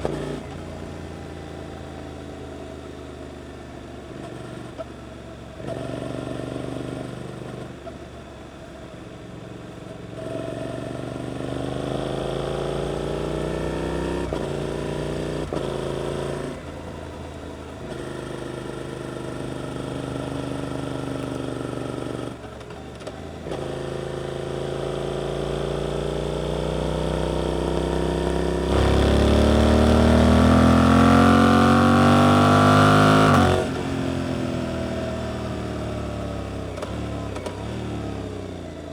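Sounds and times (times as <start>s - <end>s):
motorcycle engine accelerating: 10.2s - 38.9s.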